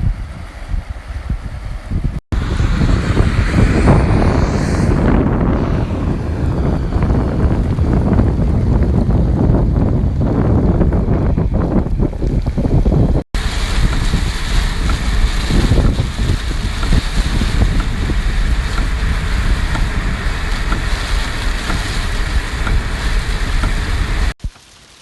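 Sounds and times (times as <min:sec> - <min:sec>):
wind buffeting microphone: 0:00.0 - 0:24.4
rushing water: 0:13.4 - 0:25.0.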